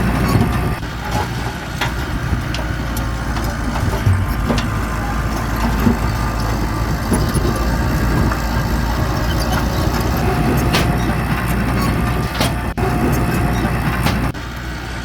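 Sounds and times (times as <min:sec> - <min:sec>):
heavy machinery diesel engine running: 0:00.0 - 0:15.0.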